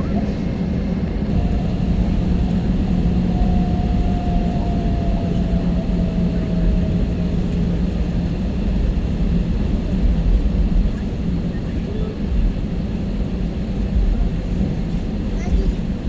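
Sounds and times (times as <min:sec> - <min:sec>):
jet engine drone in cabin: 0:00.0 - 0:16.0
faint gliding tone: 0:01.3 - 0:08.5.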